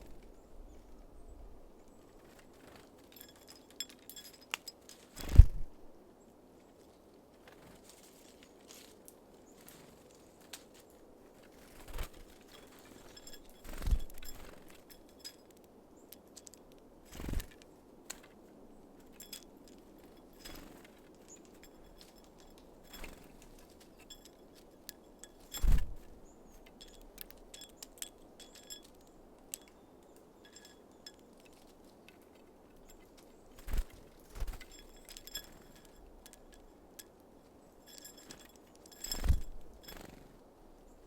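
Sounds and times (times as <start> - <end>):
birds pecking on a feeder: 11.5 - 18.2, 19.0 - 37.1, 37.8 - 40.2.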